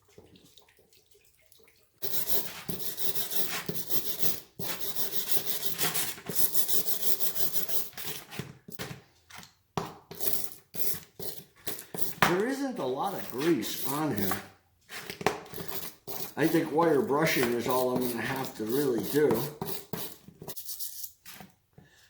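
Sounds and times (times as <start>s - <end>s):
scrubbing wet metal parts: 10.2s - 21.4s.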